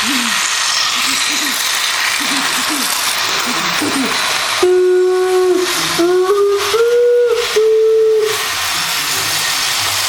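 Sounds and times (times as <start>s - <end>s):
steady hiss: 0.0s - 10.0s
horn-like tone in held notes: 4.6s - 8.4s.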